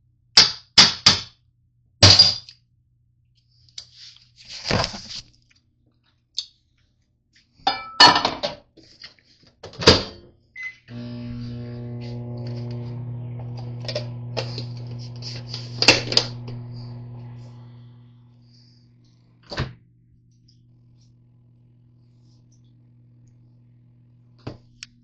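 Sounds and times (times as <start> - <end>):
microwave oven humming: 10.5 - 25.0.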